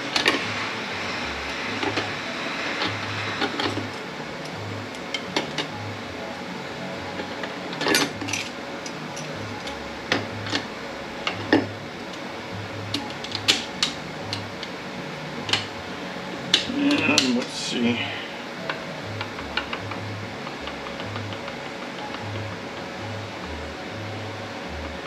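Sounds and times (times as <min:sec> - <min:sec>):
metal parts clinking on workbench: 0:07.8 - 0:09.8.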